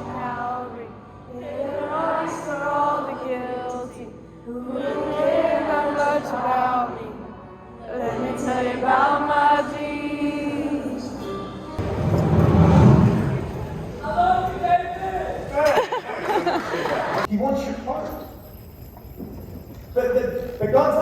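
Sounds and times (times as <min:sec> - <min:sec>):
music with singing voices: 0:00.0 - 0:11.8.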